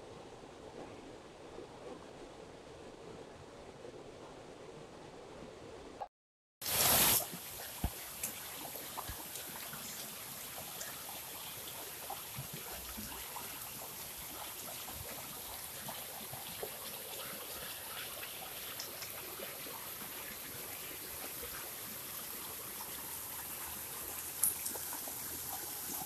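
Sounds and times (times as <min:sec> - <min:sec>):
water rushing down a channel: 0:06.6 - 0:26.0.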